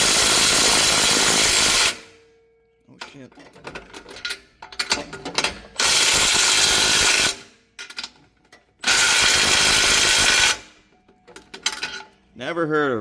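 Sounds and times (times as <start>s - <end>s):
power tool bursts: 0.0s - 2.0s, 5.8s - 7.4s, 8.8s - 10.7s.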